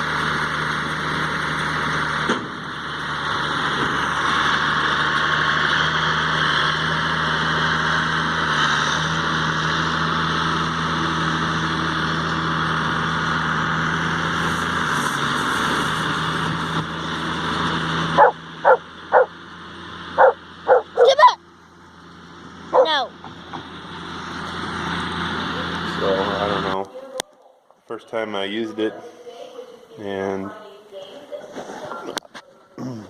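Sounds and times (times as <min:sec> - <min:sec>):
tractor engine running: 0:00.0 - 0:27.2
dog yipping: 0:18.2 - 0:19.3, 0:20.2 - 0:21.4, 0:22.8 - 0:23.1.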